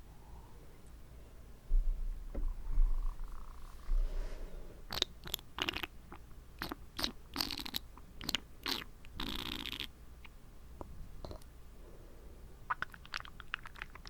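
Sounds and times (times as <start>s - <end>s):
tongue and lip clicks: 4.9s - 10.4s, 11.2s - 11.5s, 12.7s - 14.0s.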